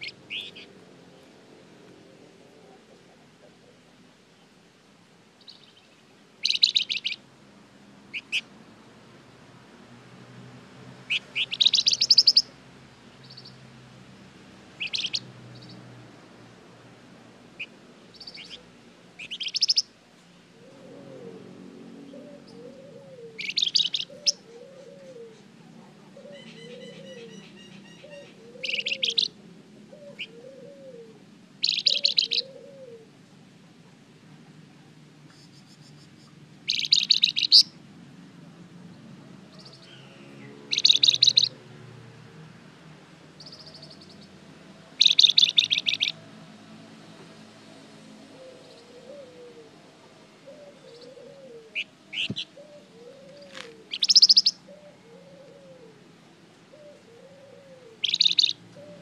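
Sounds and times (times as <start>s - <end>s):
soft bird chirps: 0.0s - 0.7s, 5.4s - 7.2s, 11.1s - 12.5s, 14.8s - 15.8s, 17.6s - 18.6s, 19.2s - 19.9s, 22.2s - 25.4s, 26.2s - 29.3s, 31.6s - 32.6s, 35.3s - 37.8s, 39.5s - 41.6s, 43.4s - 44.3s, 45.0s - 46.2s, 50.6s - 54.6s, 58.0s - 59.0s
songbird trilling: 0.0s - 0.7s, 5.4s - 7.2s, 8.1s - 8.5s, 11.1s - 12.5s, 14.8s - 15.8s, 17.6s - 18.6s, 19.2s - 19.9s, 22.2s - 25.3s, 26.2s - 29.3s, 31.6s - 32.7s, 36.6s - 37.8s, 39.5s - 41.6s, 43.4s - 44.3s, 45.0s - 46.2s, 50.5s - 55.6s, 56.8s - 59.0s.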